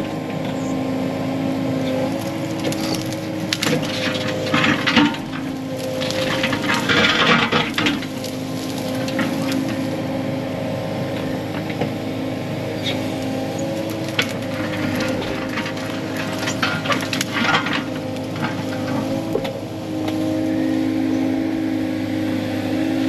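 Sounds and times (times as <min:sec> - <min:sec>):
diesel engine running: 0:00.0 - 0:23.0
branches cracking and snapping: 0:01.9 - 0:10.0, 0:12.8 - 0:20.2.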